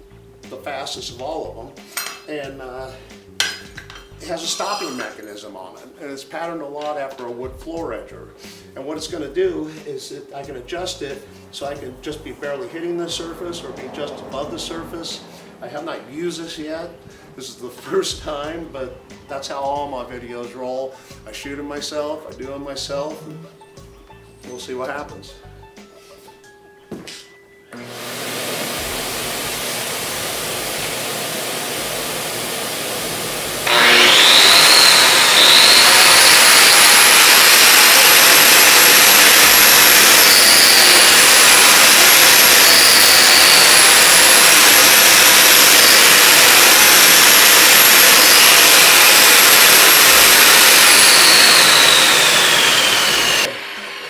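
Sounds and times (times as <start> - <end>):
grinder whining: 27.7 - 54.0.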